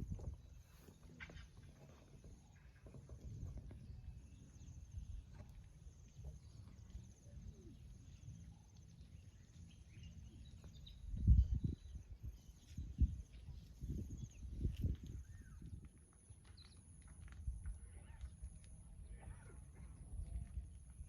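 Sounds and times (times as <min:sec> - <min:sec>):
wind buffeting microphone: 0:00.0 - 0:00.8, 0:10.7 - 0:16.0, 0:17.3 - 0:21.0
faint high rhythmic chirping: 0:00.0 - 0:21.0.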